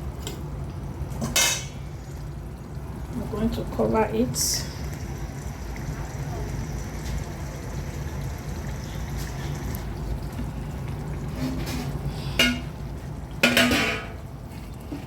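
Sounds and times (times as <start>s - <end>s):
pot lid knocking and clanking: 13.4s - 14.2s.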